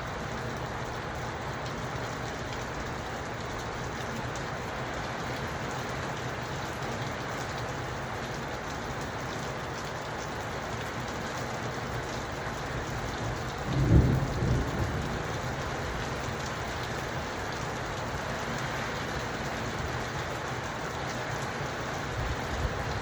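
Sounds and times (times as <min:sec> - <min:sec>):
steady rain falling: 0:00.0 - 0:23.0
low rumble of thunder: 0:13.2 - 0:17.6.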